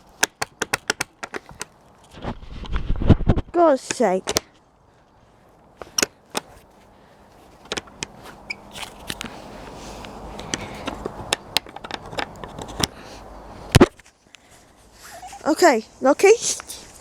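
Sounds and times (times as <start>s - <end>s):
clicks knocks and scraping: 0.0s - 4.6s, 5.8s - 6.7s, 7.5s - 9.4s, 10.4s - 13.0s
rustling noise: 1.1s - 17.0s.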